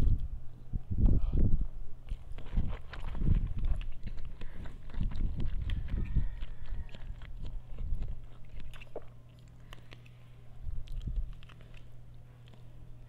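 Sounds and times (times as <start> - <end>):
chewing soft noodles: 0.0 - 13.0
faint low hum: 0.0 - 13.0
wet mouth clicks and smacks: 2.0 - 10.2, 10.8 - 12.7.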